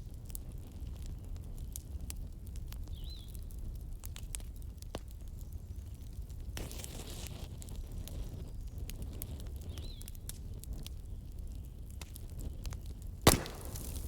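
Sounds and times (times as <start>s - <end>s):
wood fire crackling: 0.0s - 14.0s
loud fire pop: 13.2s - 14.0s.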